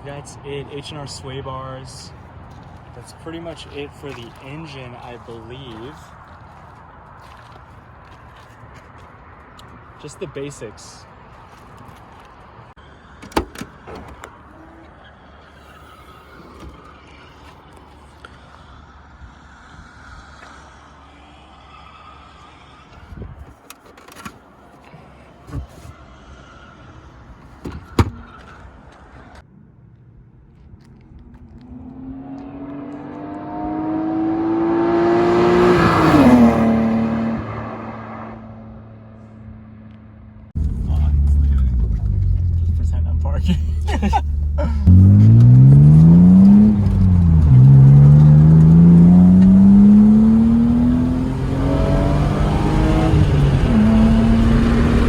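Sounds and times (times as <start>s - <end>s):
car panel slammed shut: 13.2s - 14.3s, 27.6s - 28.3s
car engine accelerating past: 31.4s - 39.9s, 44.2s - 55.0s
low background rumble: 40.5s - 48.7s.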